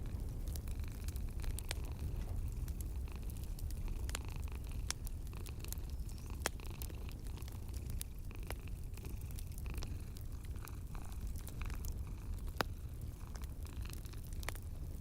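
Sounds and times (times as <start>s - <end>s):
cat purring: 0.0s - 15.0s
wood fire crackling: 0.0s - 15.0s.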